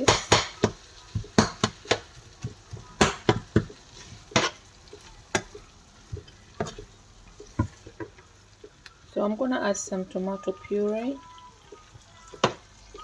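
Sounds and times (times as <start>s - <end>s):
utensil scraping frying pan: 0.0s - 8.2s
faint frying sizzle: 0.0s - 13.0s.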